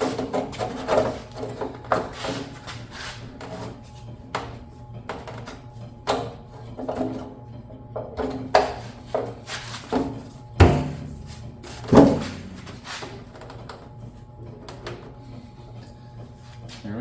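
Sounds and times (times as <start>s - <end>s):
steady low hum: 0.0s - 17.0s
metal gas tank clunks and knocks: 10.6s - 13.5s.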